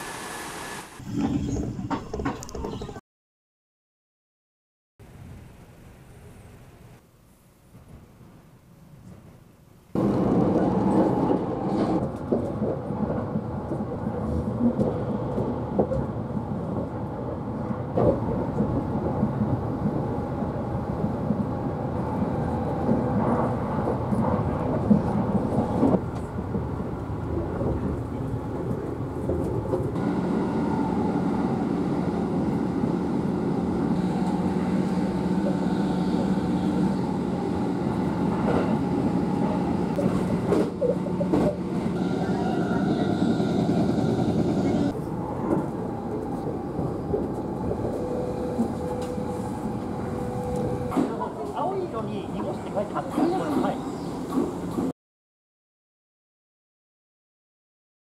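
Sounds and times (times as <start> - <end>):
train wheels rumbling on rail: 10.0 - 54.9.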